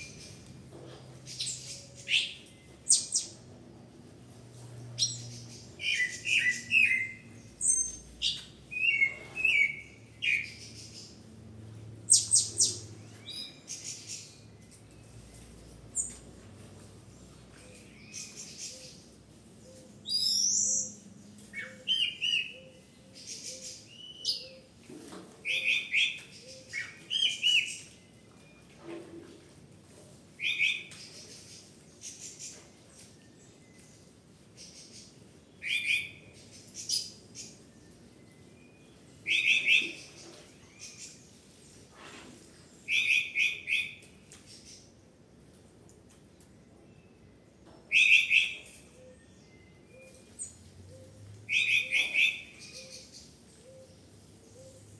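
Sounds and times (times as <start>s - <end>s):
bird chirping: 47.9s - 54.9s.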